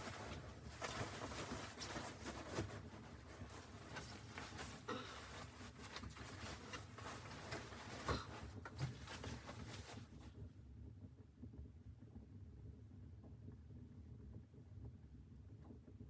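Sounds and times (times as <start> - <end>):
rustling: 0.0 - 10.3.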